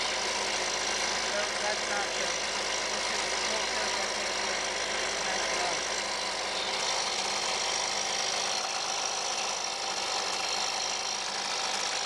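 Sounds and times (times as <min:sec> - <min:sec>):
leaf blower engine running: 0:00.0 - 0:12.0.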